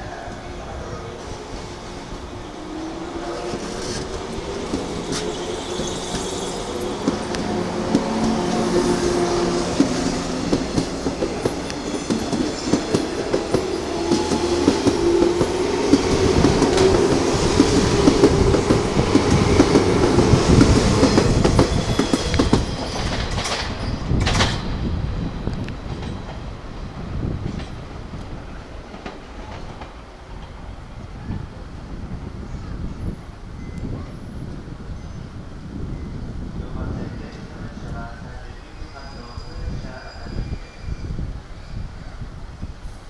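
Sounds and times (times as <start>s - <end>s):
electric train pulling out: 0.0s - 27.8s
wheels clacking over rail joints: 9.8s - 24.8s.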